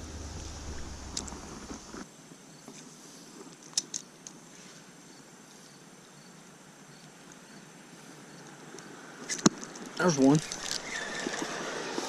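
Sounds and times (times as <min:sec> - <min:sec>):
low rumble: 0:00.0 - 0:02.0
insects chirring: 0:05.0 - 0:12.0.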